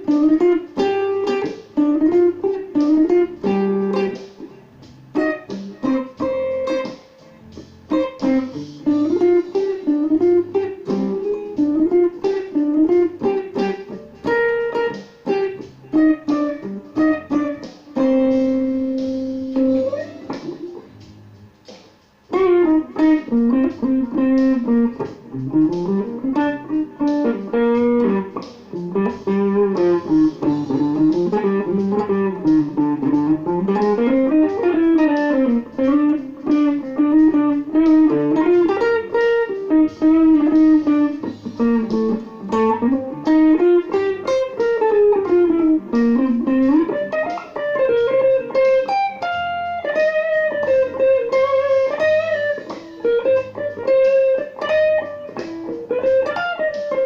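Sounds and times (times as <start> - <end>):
electric guitar with chorus effect: 0.0 - 57.0.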